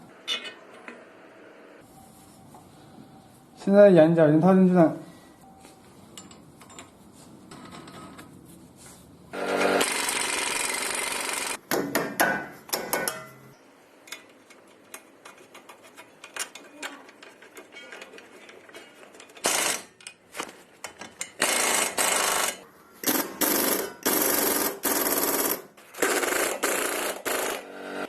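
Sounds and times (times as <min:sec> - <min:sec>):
steady tool noise: 0:09.3 - 0:11.6
sharp metal knocks and clatter: 0:11.7 - 0:13.6.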